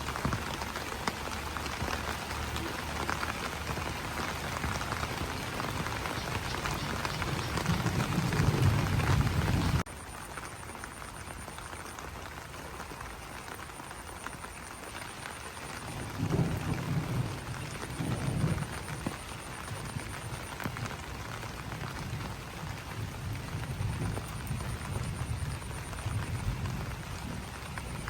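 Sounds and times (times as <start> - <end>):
rain on leaves: 0.0 - 28.0.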